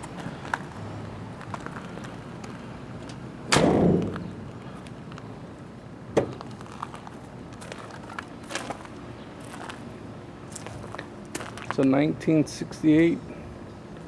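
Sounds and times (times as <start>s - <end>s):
truck door slamming: 3.5s - 4.4s, 6.1s - 6.4s.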